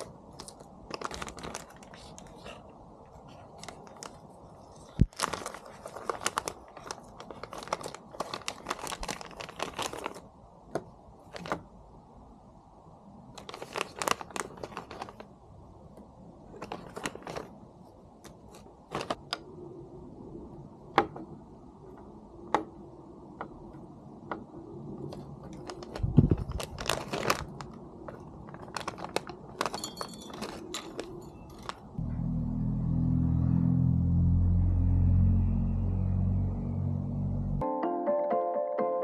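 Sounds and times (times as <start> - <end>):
loud low rumble: 32.0 - 37.6.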